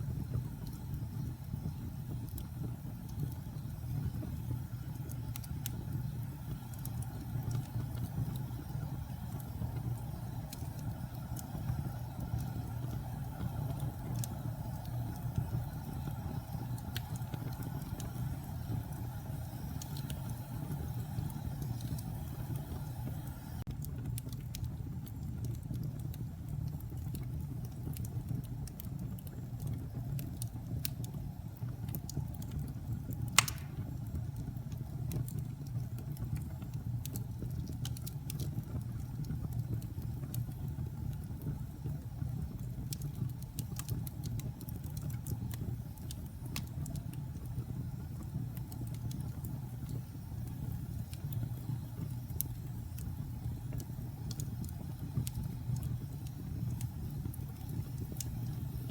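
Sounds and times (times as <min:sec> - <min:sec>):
fire crackles: 0:00.0 - 0:58.9
wood fire burning: 0:00.0 - 0:58.9
loud pop from fire: 0:33.4 - 0:34.0.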